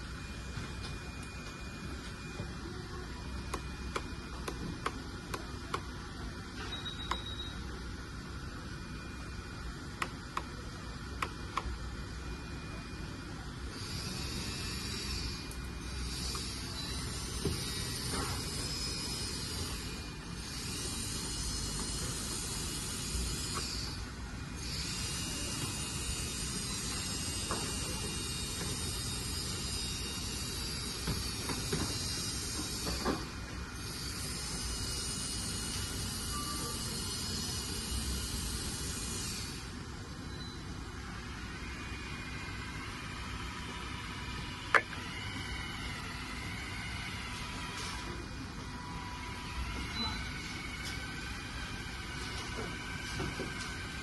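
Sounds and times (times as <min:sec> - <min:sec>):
hydraulic pump running: 0:00.0 - 0:40.2, 0:41.1 - 0:54.0.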